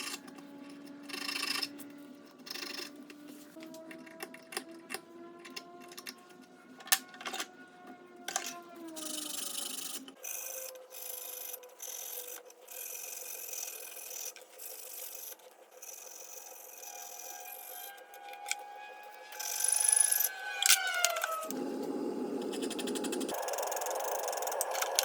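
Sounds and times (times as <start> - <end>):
filing scraping strokes: 9.0 - 21.5
steady hum: 15.5 - 25.0.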